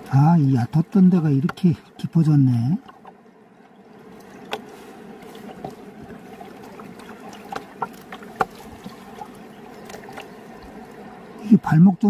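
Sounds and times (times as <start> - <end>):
person wading through water: 0.0 - 11.7
river water sloshing: 0.0 - 12.0.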